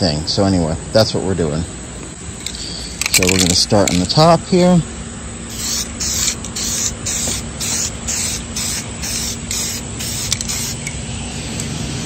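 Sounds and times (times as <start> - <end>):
aerosol can spraying hissing bursts: 5.5 - 11.8.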